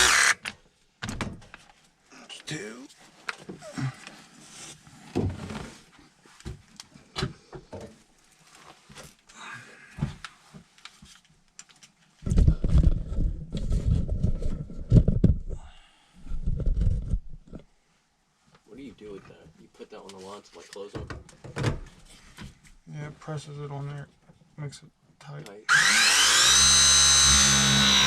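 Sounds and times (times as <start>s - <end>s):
battery press tool running: 0.0s - 0.4s, 25.7s - 28.0s.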